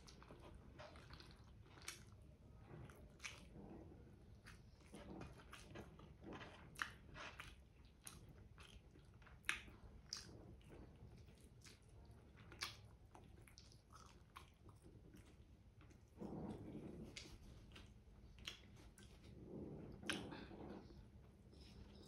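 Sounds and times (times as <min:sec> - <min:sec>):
person chewing: 0:00.0 - 0:02.2, 0:04.4 - 0:16.2.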